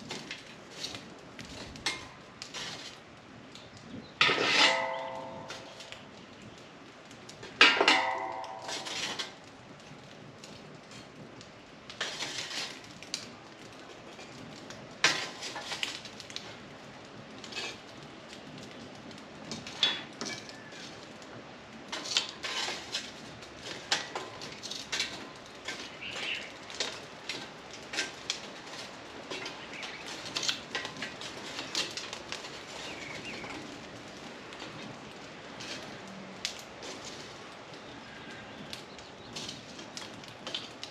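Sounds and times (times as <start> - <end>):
charcoal briquettes clattering: 0.0 - 40.9
cast iron cookware clinking: 4.2 - 5.9, 7.6 - 9.4.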